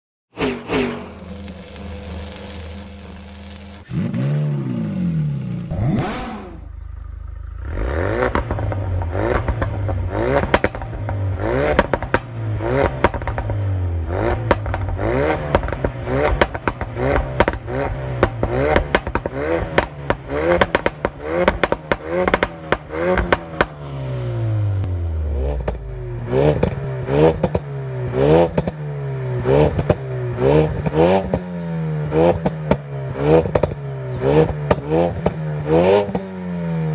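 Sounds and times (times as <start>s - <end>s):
car engine revving: 0.3s - 36.9s
exhaust pops and crackles: 0.5s - 4.2s, 5.7s - 23.8s, 29.6s - 31.5s, 32.2s - 36.3s.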